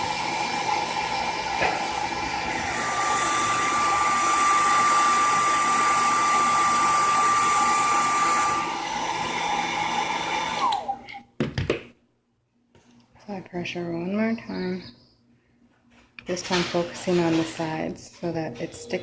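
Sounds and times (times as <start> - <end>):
hair dryer whining: 0.0 - 11.2.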